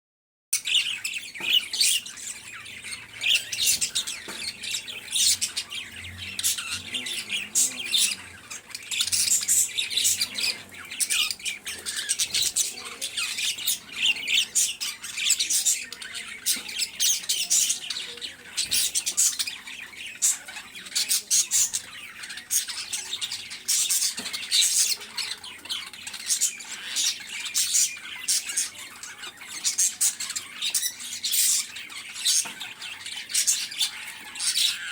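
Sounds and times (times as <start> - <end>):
small birds chirping: 0.5 - 34.9.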